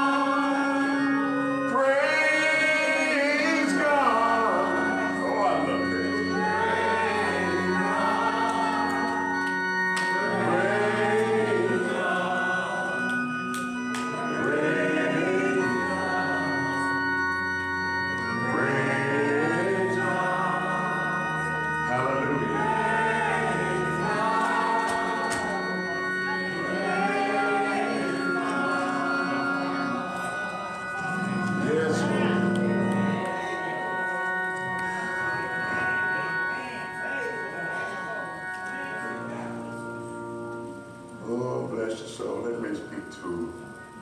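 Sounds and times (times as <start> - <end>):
person singing: 0.0 - 9.5, 14.1 - 17.2, 18.2 - 34.0
organ chords: 0.0 - 44.0.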